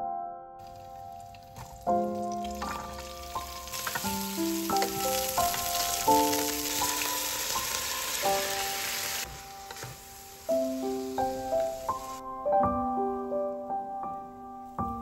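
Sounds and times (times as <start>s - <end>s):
light melodic background music: 0.0s - 15.0s
hot oil sizzling: 0.6s - 12.2s.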